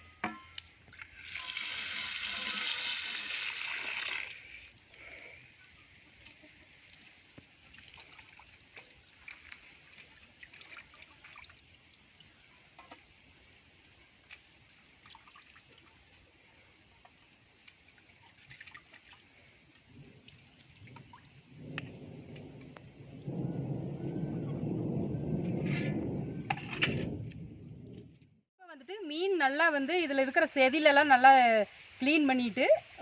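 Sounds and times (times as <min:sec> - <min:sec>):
water trickling and dripping: 0:00.4 - 0:23.4
small splashes and clicks: 0:04.0 - 0:22.9.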